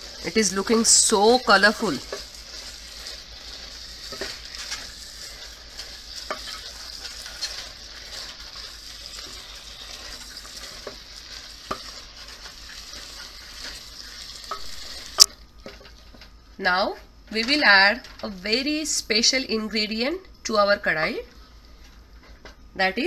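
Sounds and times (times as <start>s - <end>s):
food sizzling in a pot: 0.0s - 16.3s.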